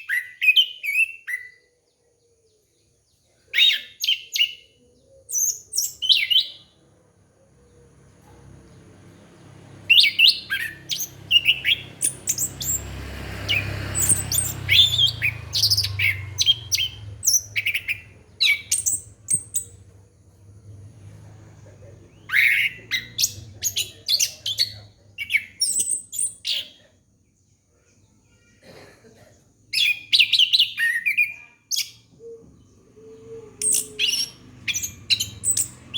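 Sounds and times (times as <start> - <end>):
thrush singing: 7.6 - 24.4.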